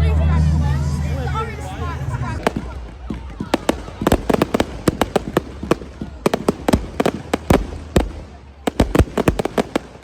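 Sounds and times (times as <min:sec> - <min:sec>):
fireworks bangs and cracks: 0:02.4 - 0:10.0.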